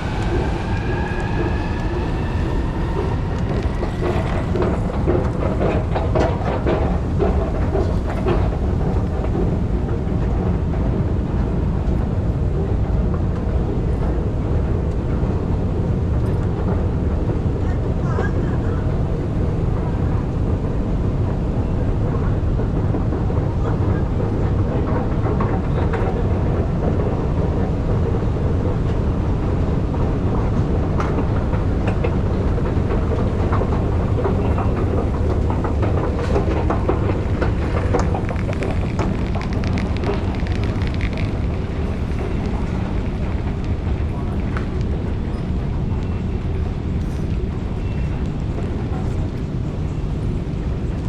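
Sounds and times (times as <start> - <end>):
railway station ambience: 0.0 - 51.0
faint clicks: 33.1 - 46.1.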